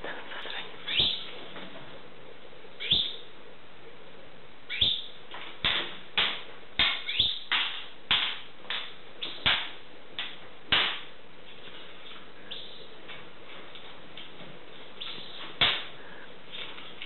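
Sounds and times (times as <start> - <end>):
birds giving harsh calls: 0.8 - 1.3, 2.8 - 3.3, 4.7 - 5.2, 6.9 - 7.6, 15.0 - 15.4.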